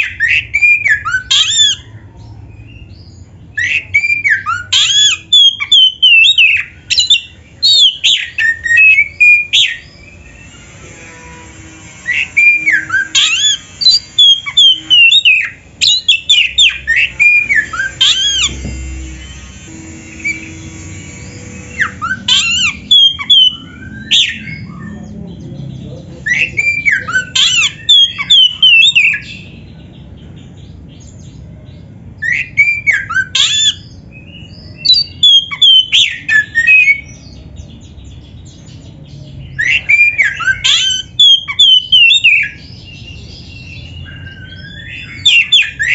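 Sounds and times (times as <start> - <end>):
bird singing whistled notes: 0.0 - 11.2, 12.0 - 31.3, 32.2 - 45.9.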